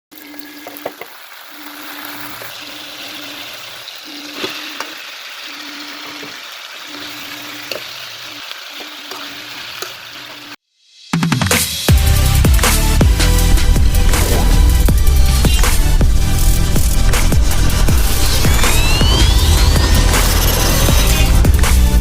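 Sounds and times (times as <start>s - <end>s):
food sizzling in a pan: 0.1s - 10.6s, 12.0s - 22.0s
low hum: 12.0s - 22.0s.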